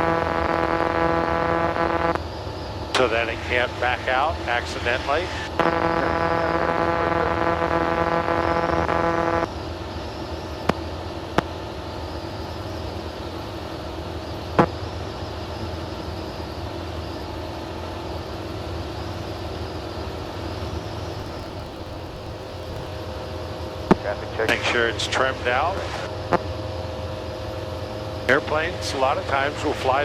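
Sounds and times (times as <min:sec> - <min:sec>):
loud steady tone with overtones: 0:00.0 - 0:24.5
light aircraft engine drone: 0:00.0 - 0:30.0.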